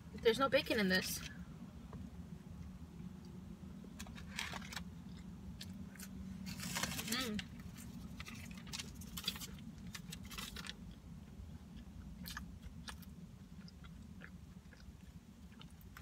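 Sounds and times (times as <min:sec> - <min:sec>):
steady low hum: 0:00.0 - 0:16.0
person chewing food: 0:07.7 - 0:16.0.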